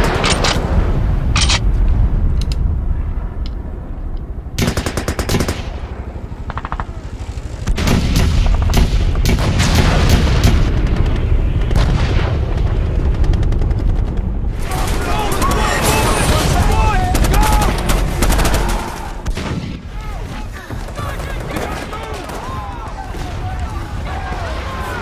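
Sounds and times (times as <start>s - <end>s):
low rumble: 0.0s - 20.5s
machine-gun bursts: 6.5s - 10.8s
single gunshots: 7.7s - 13.2s, 19.2s - 20.4s.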